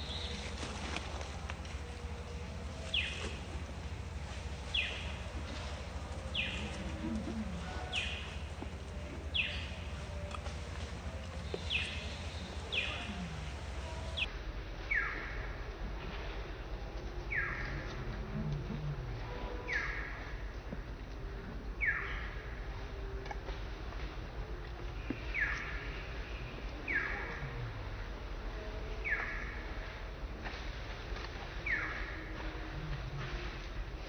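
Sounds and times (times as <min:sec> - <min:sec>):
steady low rumble: 0:00.0 - 0:19.7.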